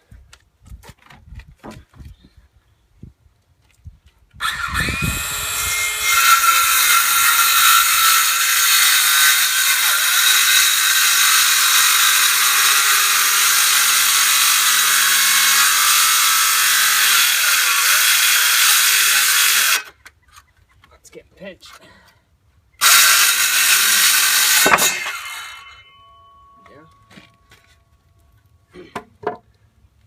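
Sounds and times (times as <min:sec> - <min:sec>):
circular saw cutting board: 0:04.4 - 0:19.9, 0:22.8 - 0:27.8.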